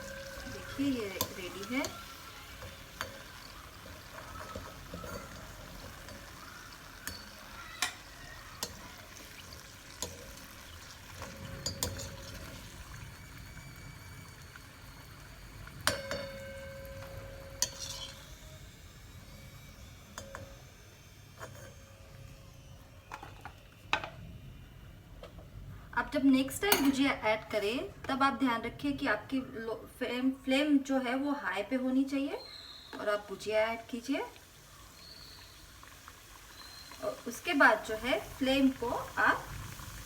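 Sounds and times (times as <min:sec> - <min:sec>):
metal spoon clinking on pan: 0:00.0 - 0:12.7, 0:15.8 - 0:18.4, 0:20.1 - 0:20.6, 0:26.7 - 0:27.0
deep-frying sizzle: 0:00.0 - 0:24.6, 0:32.2 - 0:40.0.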